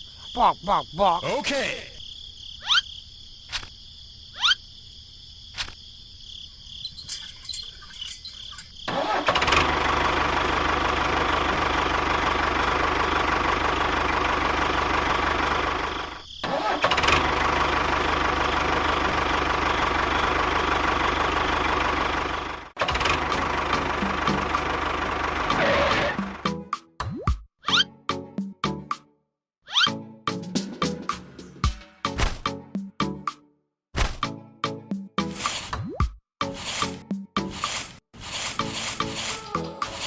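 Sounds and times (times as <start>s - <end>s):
small motor running: 36.6s - 40.0s.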